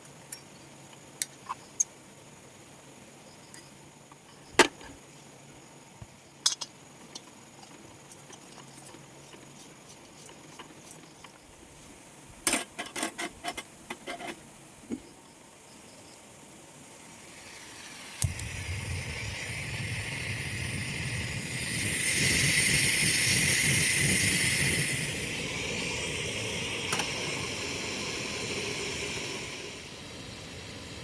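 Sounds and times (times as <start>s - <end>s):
sharp clicks and knocks: 6.4s - 11.4s
low rumble with hiss: 13.8s - 31.0s.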